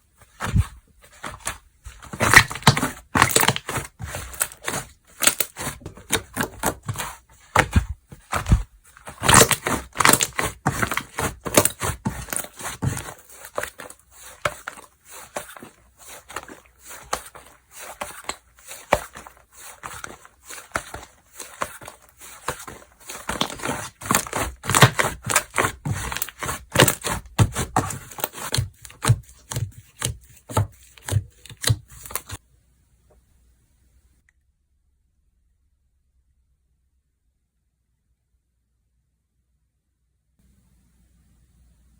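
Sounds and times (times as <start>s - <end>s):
slime crackling and popping: 1.3s - 7.8s, 23.1s - 29.1s.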